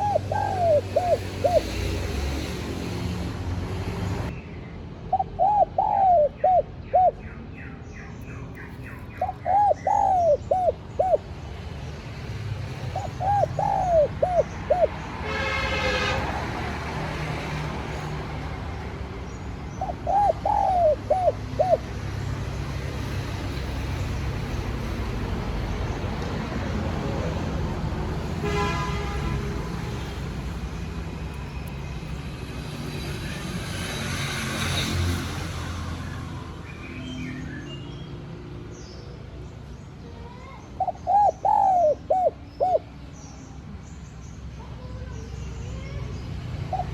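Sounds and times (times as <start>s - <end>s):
dove cooing: 0.0s - 2.4s, 5.1s - 7.3s, 8.8s - 11.4s, 12.8s - 15.5s, 19.7s - 22.0s, 40.8s - 43.0s, 46.7s - 46.9s.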